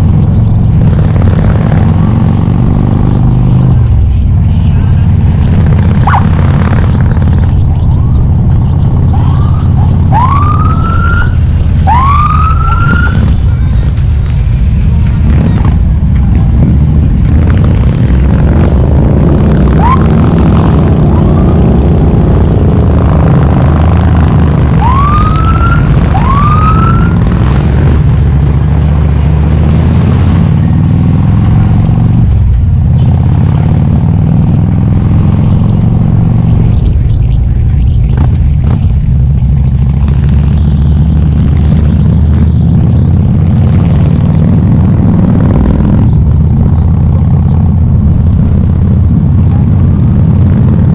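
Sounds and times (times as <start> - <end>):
motorcycle engine running: 0.0 - 50.9
rising siren-like whoops: 9.1 - 13.4, 19.7 - 20.2, 24.8 - 27.3.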